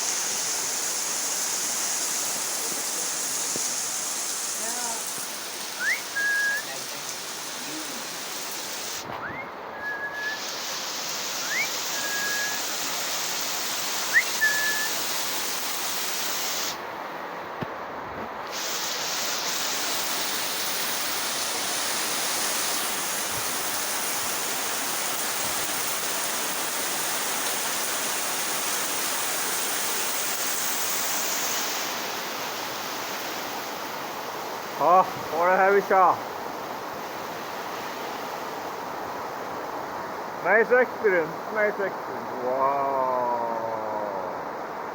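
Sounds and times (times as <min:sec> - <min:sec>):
heavy rain pouring: 0:00.0 - 0:16.8, 0:18.4 - 0:36.2
short high whistles: 0:05.7 - 0:15.5.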